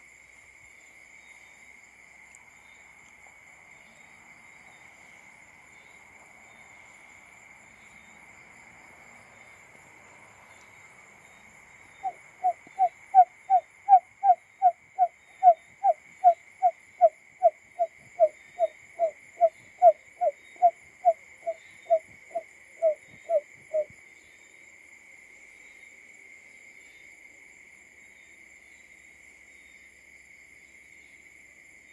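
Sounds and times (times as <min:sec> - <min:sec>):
bird low hooting call: 0:12.0 - 0:23.9.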